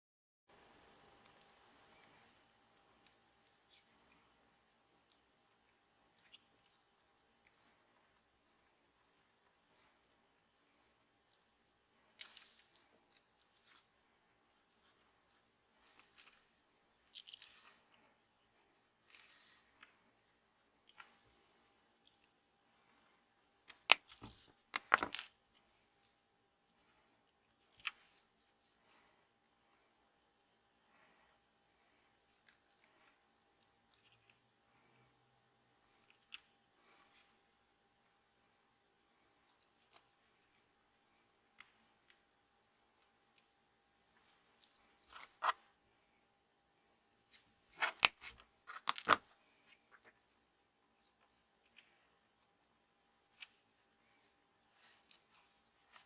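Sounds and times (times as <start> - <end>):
snips clicks and scrapes: 47.3 - 49.2.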